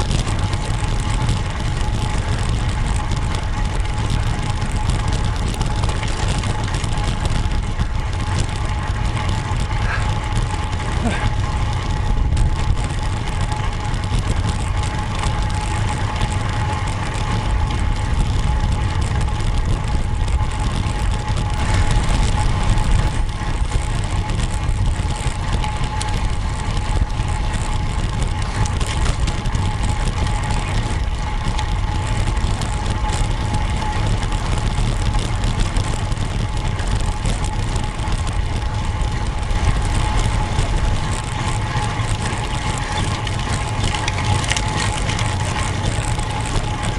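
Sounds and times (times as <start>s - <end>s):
road noise from bike: 0.0s - 46.9s
thin steady whine: 0.0s - 46.9s
wind rumble on microphone: 0.0s - 46.9s.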